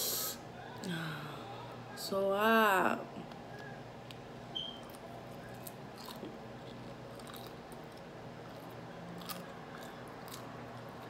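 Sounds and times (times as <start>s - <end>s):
person chewing food: 4.8s - 11.0s.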